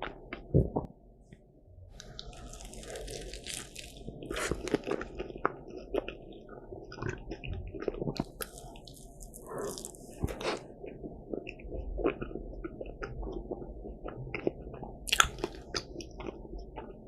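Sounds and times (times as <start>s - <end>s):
crunchy bite: 2.0s - 6.1s, 15.1s - 16.3s
wet chewing: 2.0s - 17.0s.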